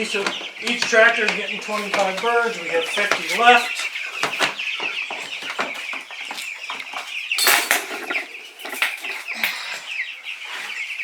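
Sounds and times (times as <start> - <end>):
scuffling and wing flapping: 0.0 - 9.4
chicks peeping: 0.0 - 11.0.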